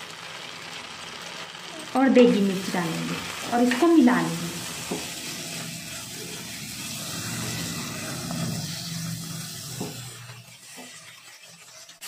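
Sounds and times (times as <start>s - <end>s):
paste sizzling in pan: 0.0s - 12.0s.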